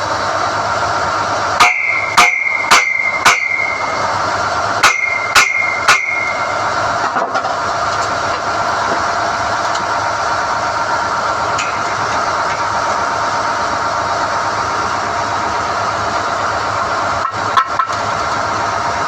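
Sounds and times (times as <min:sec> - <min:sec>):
core drill rig running: 0:00.0 - 0:19.0
hammer blows on steel: 0:01.6 - 0:04.0, 0:04.8 - 0:06.7.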